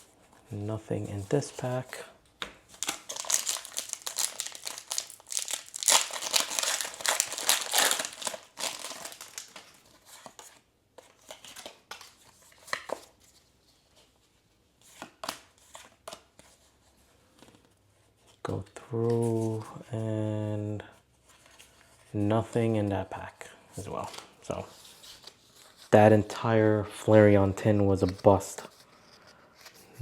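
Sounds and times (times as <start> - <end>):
foil wrapper crinkling and tearing: 2.8 - 9.8.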